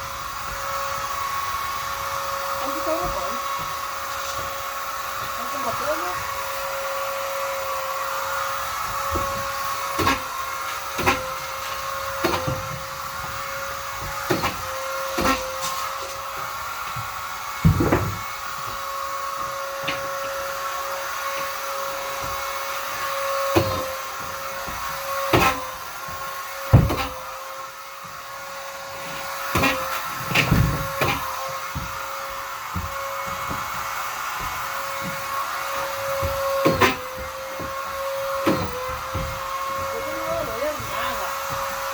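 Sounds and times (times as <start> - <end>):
vacuum cleaner motor whine: 0.0 - 41.9
knocks and bumps: 16.9 - 20.2, 23.2 - 27.2, 29.5 - 41.9.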